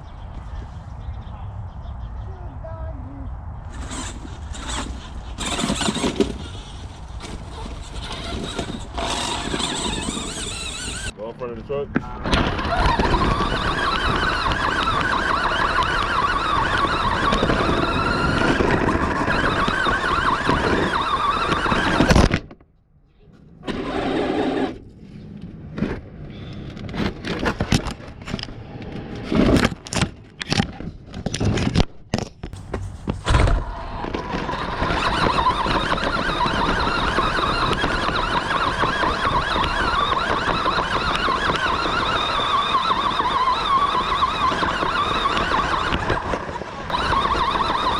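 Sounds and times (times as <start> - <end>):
toy truck motor whining: 3.7 - 11.2, 12.3 - 22.3, 23.6 - 24.8, 33.7 - 47.9.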